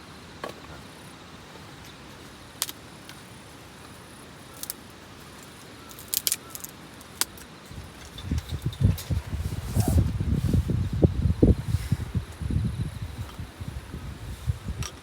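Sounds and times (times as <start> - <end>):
steady hiss: 0.0 - 15.0
low rumbling buffets: 7.7 - 15.0.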